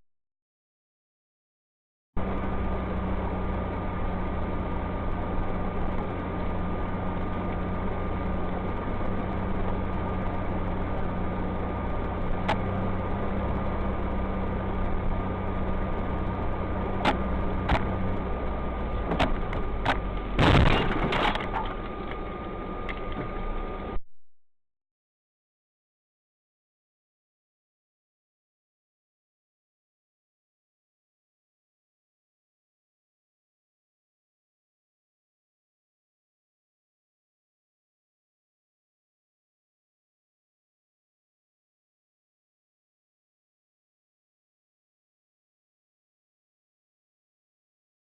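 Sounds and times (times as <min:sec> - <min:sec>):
car engine and road noise: 0:02.2 - 0:24.0
loud crunching collision: 0:19.1 - 0:21.8.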